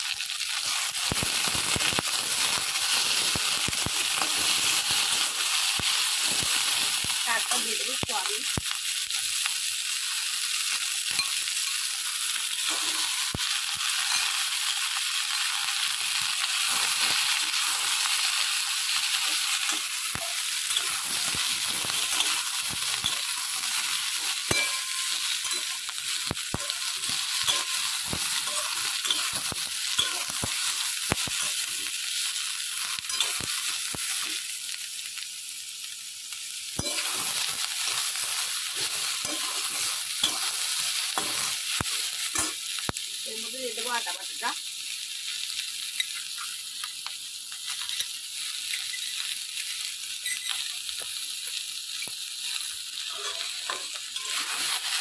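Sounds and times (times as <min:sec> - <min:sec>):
vegetables sizzling in oil: 0:00.0 - 0:55.0
metal spatula scraping a pan: 0:19.1 - 0:31.7, 0:33.0 - 0:33.6, 0:36.8 - 0:42.6, 0:53.0 - 0:55.0.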